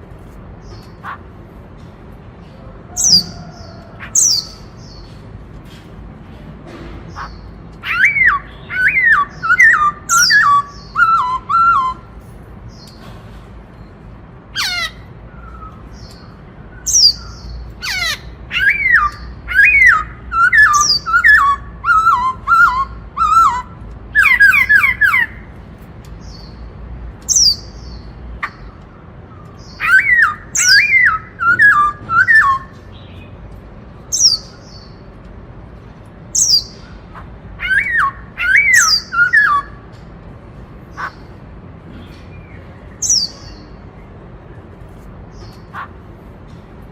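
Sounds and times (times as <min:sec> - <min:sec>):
bird singing whistled notes: 0:07.8 - 0:12.1, 0:15.3 - 0:17.6, 0:29.7 - 0:33.2, 0:37.6 - 0:39.8.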